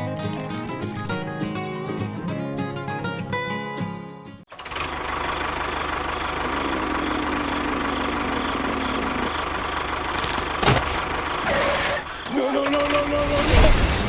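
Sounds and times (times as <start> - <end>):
small engine running: 4.5 - 12.2.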